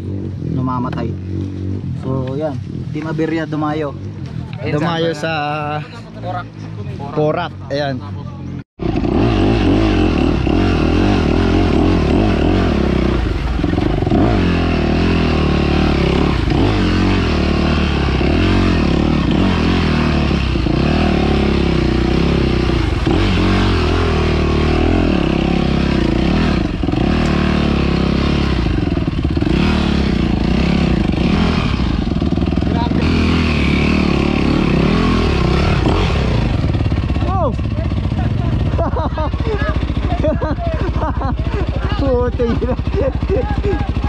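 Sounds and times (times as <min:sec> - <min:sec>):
dirt bike engine running: 0:08.8 - 0:44.0.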